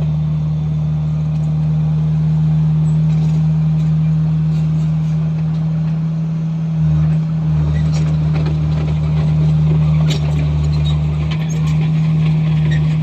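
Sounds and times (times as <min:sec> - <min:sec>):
bulldozer diesel engine droning: 0:00.0 - 0:13.0.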